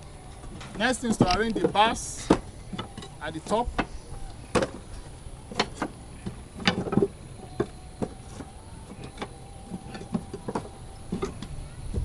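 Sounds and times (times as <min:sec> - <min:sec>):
wooden bars knocking: 0:00.7 - 0:04.8.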